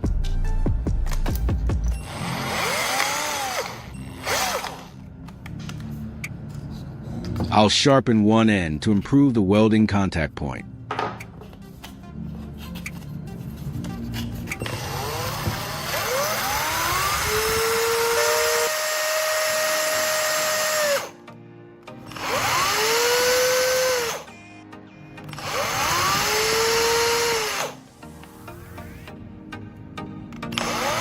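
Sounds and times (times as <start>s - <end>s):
power tool motor whine: 2.0s - 5.0s, 14.5s - 21.2s, 22.0s - 24.4s, 25.3s - 28.4s, 30.5s - 31.0s.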